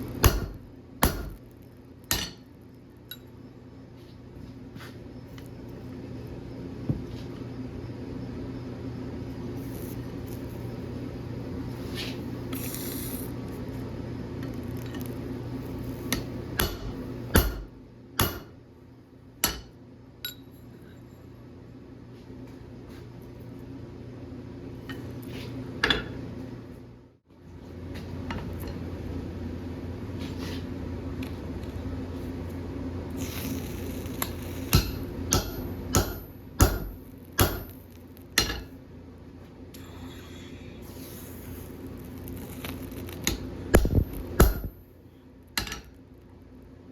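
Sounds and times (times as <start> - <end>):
steady hum: 0.0 - 46.9
hammer striking steel on anvil: 0.2 - 1.4, 2.1 - 2.4, 16.1 - 18.6, 19.4 - 20.5, 34.7 - 38.8, 43.8 - 44.8, 45.6 - 45.9.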